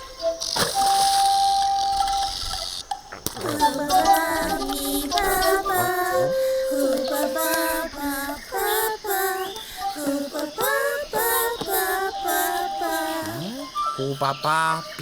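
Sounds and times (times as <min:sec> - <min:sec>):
cartoon voice singing babble: 0:03.1 - 0:15.0.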